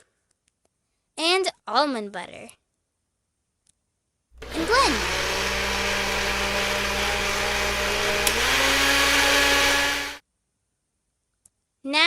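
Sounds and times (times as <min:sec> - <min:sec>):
electric blender motor hum: 0:04.4 - 0:10.2.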